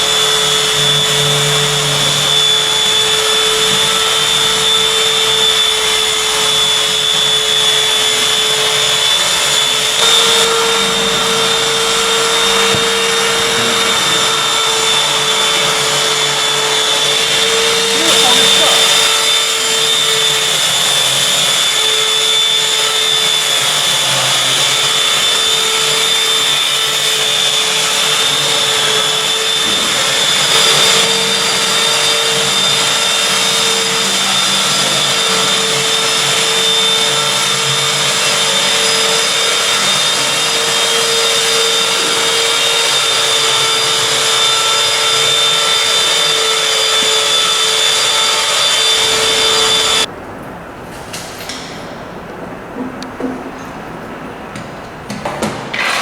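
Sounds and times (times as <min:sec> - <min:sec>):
machine motor whining: 0:00.0 - 0:50.1.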